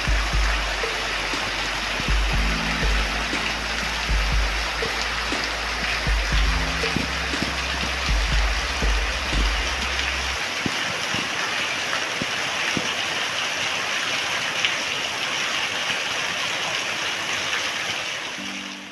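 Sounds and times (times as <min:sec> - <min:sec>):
drips ticking: 0:00.0 - 0:13.0
rain falling: 0:00.0 - 0:18.9.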